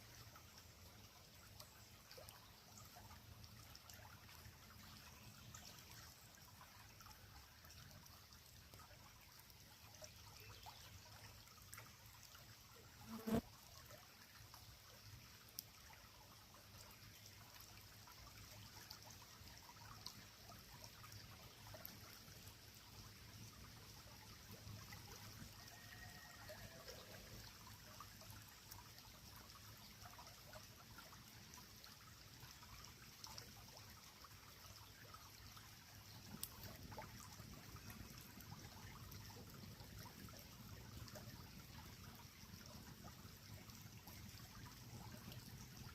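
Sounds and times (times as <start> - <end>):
creek trickling: 0.0 - 45.9.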